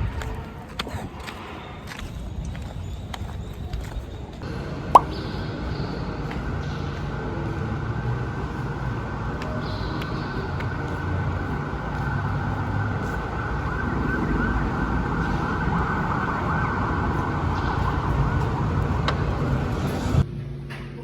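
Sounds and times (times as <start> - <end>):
vehicle road noise: 0.0 - 21.0
siren wailing: 6.8 - 20.2.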